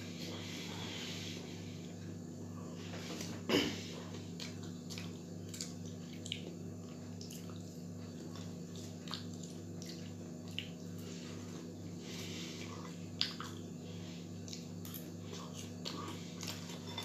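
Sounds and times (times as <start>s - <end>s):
person chewing french fries: 4.1s - 17.0s.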